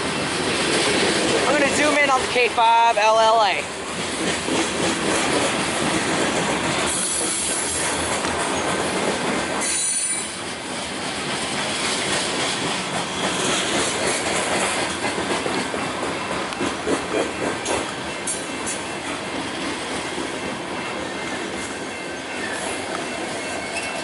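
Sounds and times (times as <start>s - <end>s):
freight cars rumbling on rails: 0.0s - 24.0s
wheel squeal: 9.6s - 10.4s.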